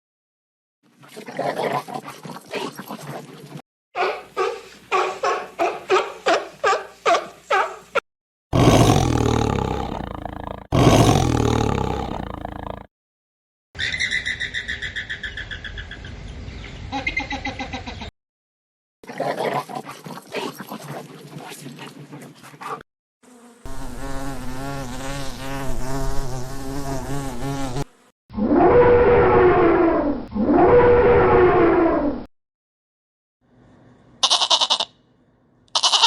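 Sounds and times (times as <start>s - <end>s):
long pitched animal calls: 8.6s - 12.8s, 34.2s - 34.9s
animal sounds: 8.6s - 12.9s, 19.1s - 22.8s, 34.2s - 35.0s, 35.7s - 36.0s
pulsing insect-like buzz: 8.6s - 12.9s, 23.3s - 28.1s.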